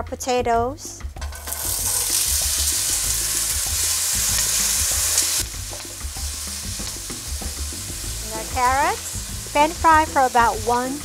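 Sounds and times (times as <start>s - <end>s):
potatoes sizzling in hot oil: 1.2s - 11.0s.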